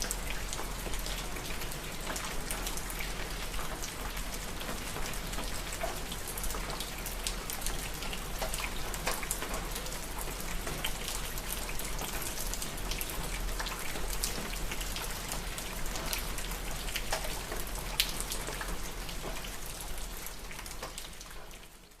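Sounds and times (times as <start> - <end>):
rain dripping on hard surface: 0.0 - 22.0.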